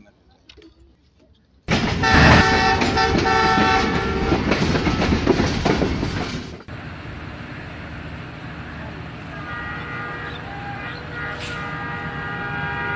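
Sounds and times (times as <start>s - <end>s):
running train: 1.7s - 12.9s
train horn: 1.9s - 4.6s, 9.2s - 12.9s.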